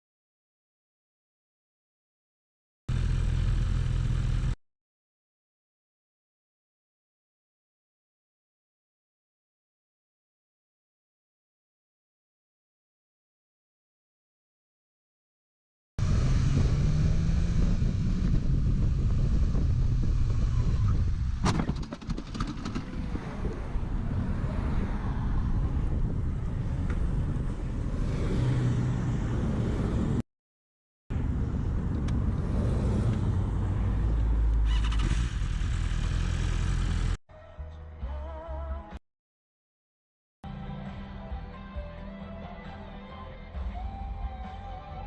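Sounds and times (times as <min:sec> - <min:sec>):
car engine: 0:02.9 - 0:04.6, 0:16.0 - 0:30.2, 0:31.1 - 0:37.2
road noise: 0:02.9 - 0:04.6, 0:16.0 - 0:30.2, 0:31.1 - 0:37.2.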